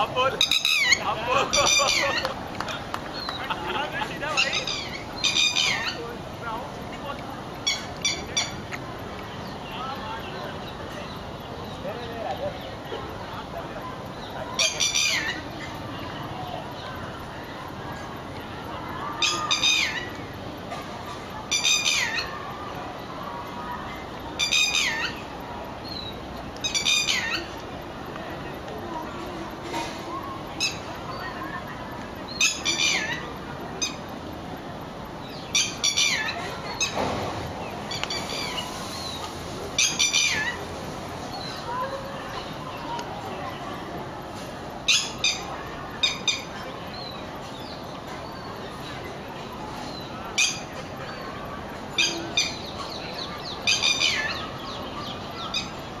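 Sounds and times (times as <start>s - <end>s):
bird harsh high calls: 0.0s - 2.4s, 3.2s - 6.1s, 7.6s - 8.7s, 14.2s - 15.8s, 19.1s - 20.2s, 21.5s - 22.6s, 24.3s - 27.6s, 32.3s - 34.1s, 35.2s - 37.0s, 37.6s - 40.7s, 44.9s - 48.6s, 49.8s - 56.0s
outdoor background noise: 0.0s - 56.0s.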